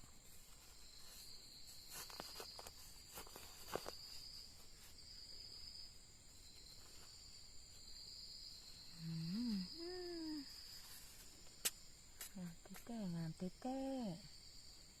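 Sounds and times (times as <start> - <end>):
insects chirring: 0.0 - 15.0
person wordless vocal sound: 9.0 - 10.5.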